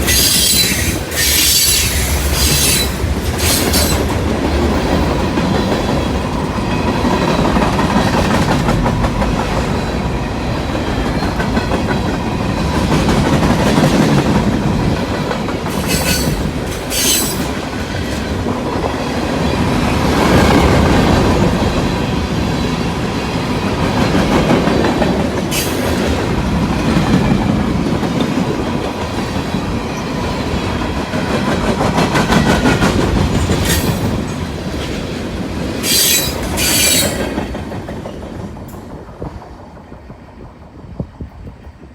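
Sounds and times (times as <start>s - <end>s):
high-pitched wheel squeals: 0.0s - 4.0s, 15.7s - 17.5s, 35.8s - 37.3s
freight train rumbling past: 0.0s - 41.9s.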